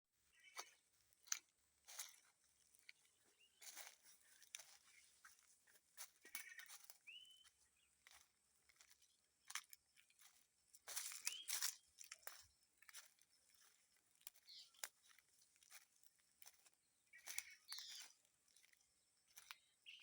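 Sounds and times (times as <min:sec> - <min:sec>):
small animal chirps: 0:06.3 - 0:07.5, 0:14.4 - 0:14.9, 0:17.2 - 0:18.2.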